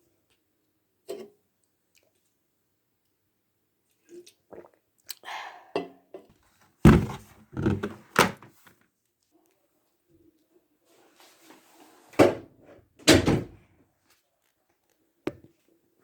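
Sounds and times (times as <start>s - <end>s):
heavy thunk: 6.9s - 8.5s
household knocks and thuds: 6.9s - 8.7s.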